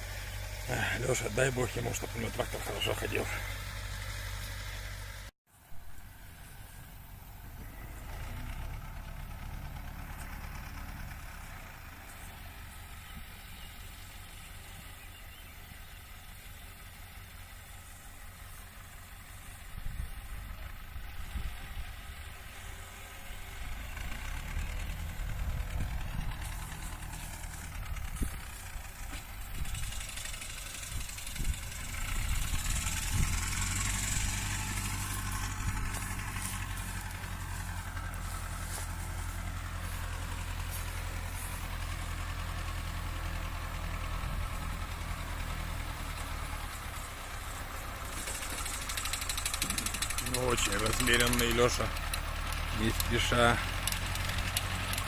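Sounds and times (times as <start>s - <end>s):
tractor engine hum: 0.0s - 55.0s
rotary mower hiss: 21.2s - 42.6s, 46.8s - 55.0s.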